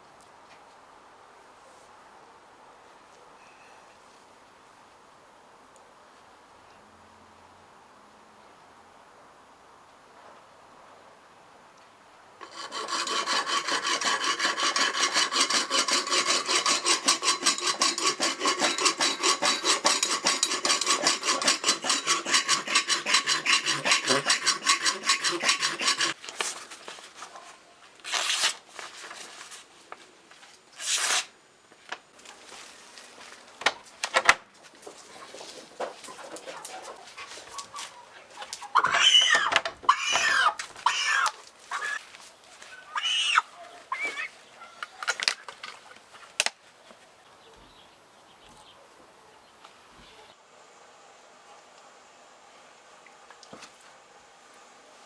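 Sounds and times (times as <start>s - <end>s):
abrasive strokes on metal knife: 12.4s - 26.2s.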